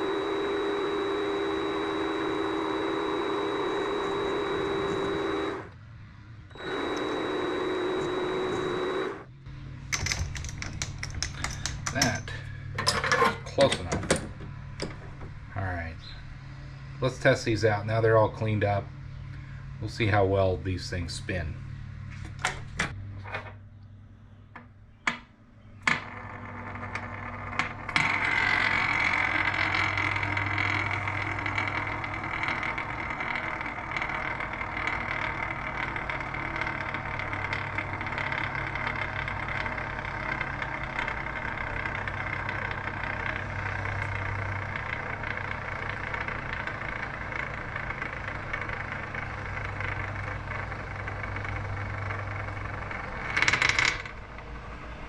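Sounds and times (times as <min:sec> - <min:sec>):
spinning top whirring hiss: 0:00.0 - 0:05.7, 0:26.1 - 0:53.8.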